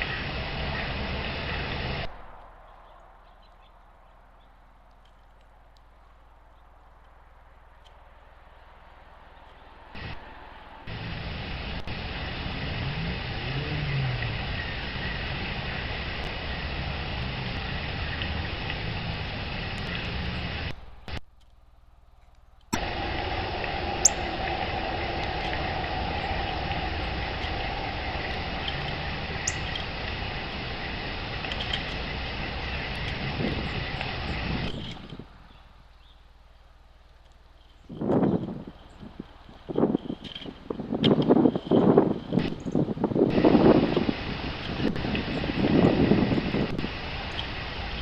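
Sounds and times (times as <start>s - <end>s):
traffic rushing: 0.0s - 4.4s, 8.1s - 20.8s, 22.8s - 35.3s, 41.9s - 48.0s
high bird chirps: 22.8s - 30.5s.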